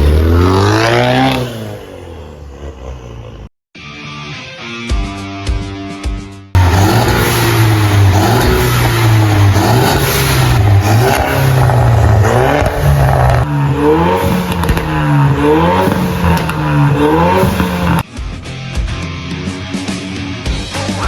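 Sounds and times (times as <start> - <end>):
car engine revving: 0.0 - 3.5, 6.6 - 18.0.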